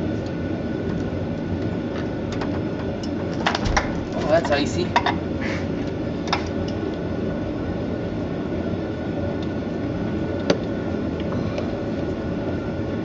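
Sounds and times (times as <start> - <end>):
low rumbling noise: 0.0 - 6.3
faint hum: 0.0 - 13.0.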